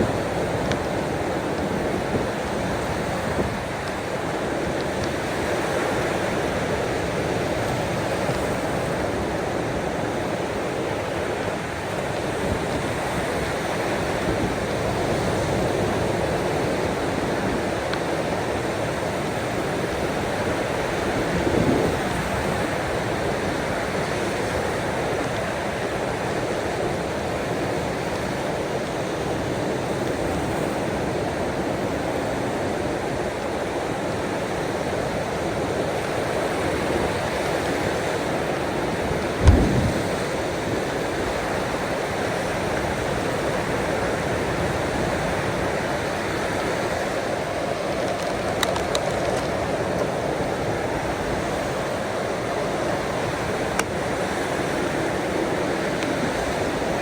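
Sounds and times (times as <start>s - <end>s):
rain: 0.0s - 57.0s
ocean waves: 35.4s - 57.0s.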